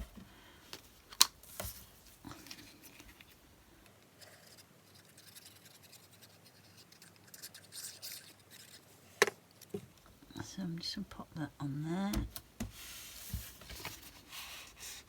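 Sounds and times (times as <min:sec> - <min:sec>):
paper rustling and scraping: 0:12.6 - 0:15.0.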